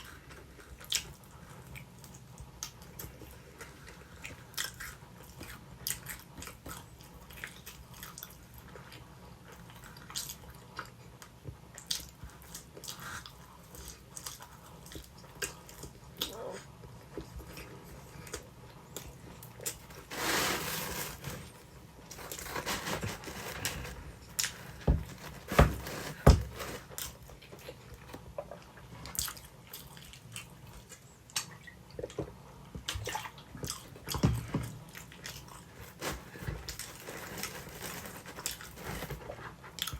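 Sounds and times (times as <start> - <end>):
person chewing food: 0.0 - 20.1, 21.0 - 39.9
crust crunching: 19.6 - 27.7.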